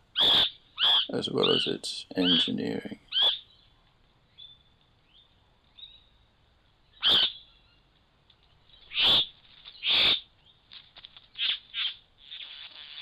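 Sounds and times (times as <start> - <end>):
harsh bird calls: 0.1 - 3.7, 6.9 - 7.8, 8.7 - 10.6
faint bird chirps: 0.1 - 13.0.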